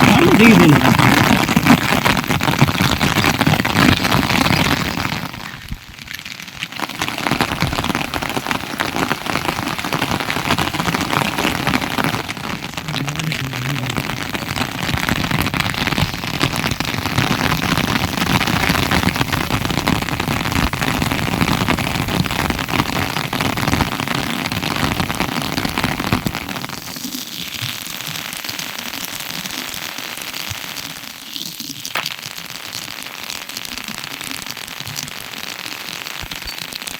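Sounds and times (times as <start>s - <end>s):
heavy rain falling: 0.0s - 26.9s.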